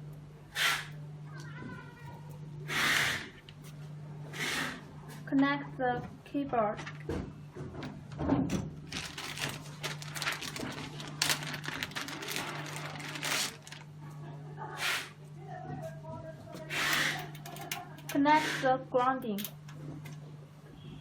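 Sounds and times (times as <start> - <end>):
low electrical hum: 0.0 - 21.0
cables rustling: 8.8 - 14.0.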